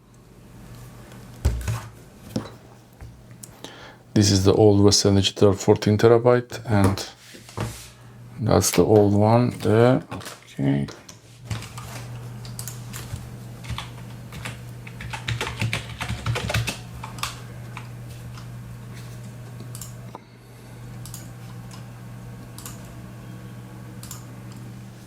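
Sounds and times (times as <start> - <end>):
computer humming: 8.0 - 10.9, 11.5 - 25.0
typing on computer keyboard: 12.6 - 17.4.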